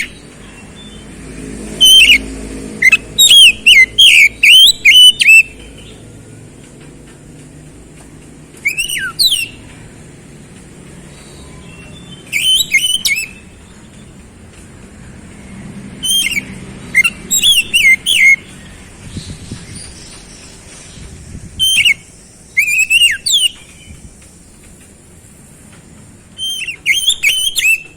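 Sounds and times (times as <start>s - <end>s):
bird whistled song: 0.0s - 1.1s, 1.7s - 6.1s, 8.6s - 9.8s, 11.1s - 14.2s, 16.0s - 24.5s, 26.4s - 27.9s.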